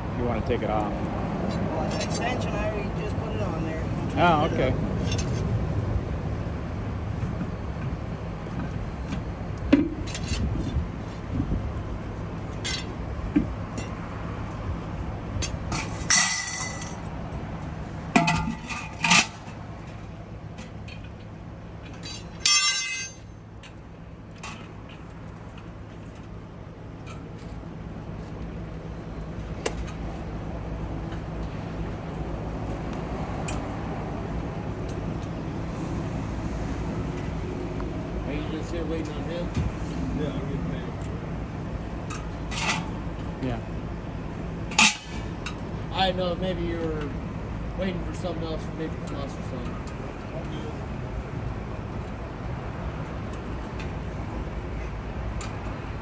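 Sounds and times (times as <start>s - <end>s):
metal tools clinking: 5.0s - 5.4s, 12.5s - 14.6s, 15.4s - 17.1s, 18.2s - 20.0s, 20.6s - 26.3s, 42.0s - 43.0s, 44.7s - 52.5s.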